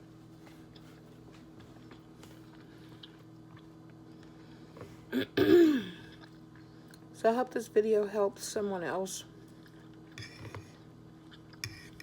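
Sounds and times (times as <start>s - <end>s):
quiet chewing: 0.4s - 4.7s, 6.1s - 7.1s, 9.4s - 10.2s.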